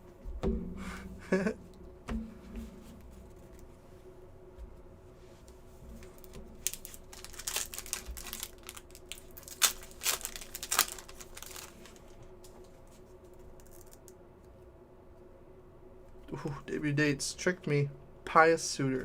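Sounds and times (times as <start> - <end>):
wrapper crinkling and tearing: 6.0 - 12.1
cards being handled: 6.0 - 14.0.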